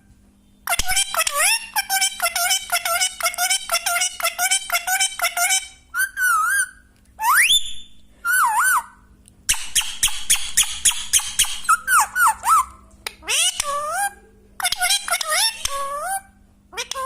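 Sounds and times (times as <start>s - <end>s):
parrot chattering: 0.7s - 7.5s, 8.3s - 17.0s
parrot whistling: 3.8s - 16.2s.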